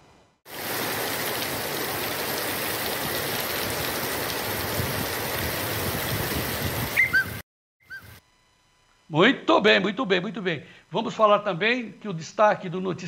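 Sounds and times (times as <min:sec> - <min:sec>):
rain pouring: 0:00.5 - 0:07.1
short high chirps: 0:07.0 - 0:08.2.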